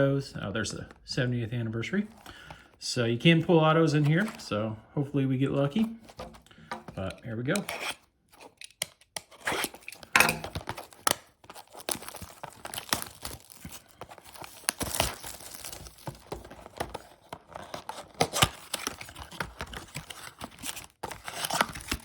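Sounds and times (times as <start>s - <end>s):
wrapping crinkling and ripping: 7.8s - 22.0s.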